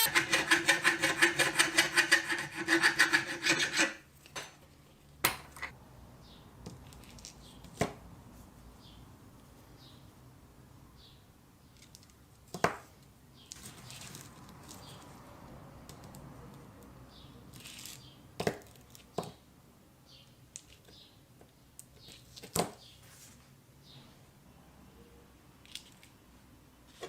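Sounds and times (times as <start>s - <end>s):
faint scraping and rustling: 13.4s - 15.2s, 22.0s - 24.3s.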